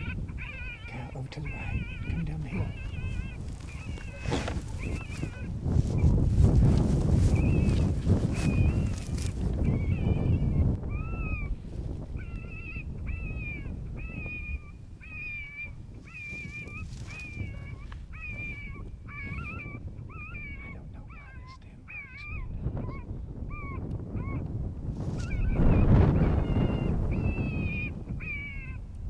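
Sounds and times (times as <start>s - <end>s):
rabbit distress call squeals: 0.0s - 5.5s
wind rumbling on microphone: 0.0s - 29.0s.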